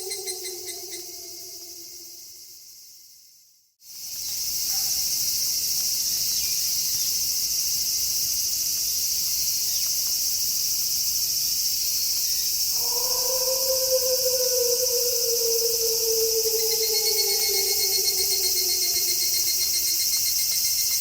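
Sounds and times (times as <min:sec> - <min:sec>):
night insects chorus: 0:00.0 - 0:03.1, 0:03.9 - 0:21.0
low call: 0:12.8 - 0:20.1.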